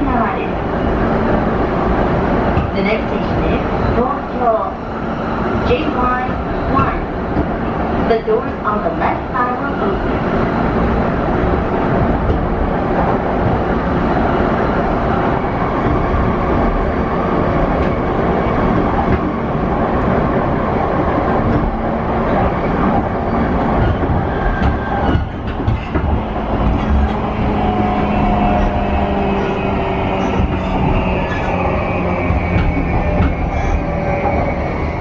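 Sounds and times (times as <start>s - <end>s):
train wheels rumbling on rail: 0.0s - 35.0s
rail-joint clatter: 5.6s - 9.9s, 11.8s - 14.2s, 21.3s - 34.6s.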